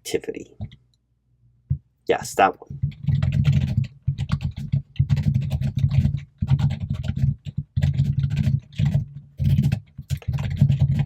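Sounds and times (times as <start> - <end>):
fast typing on keyboard: 2.7 - 11.0.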